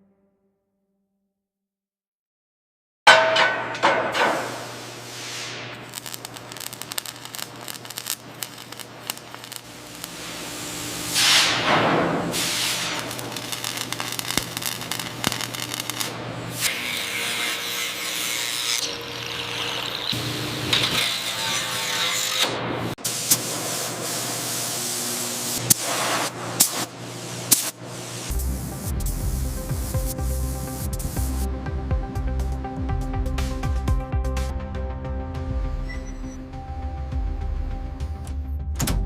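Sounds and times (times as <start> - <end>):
bright hiss: 4.6 - 16.1.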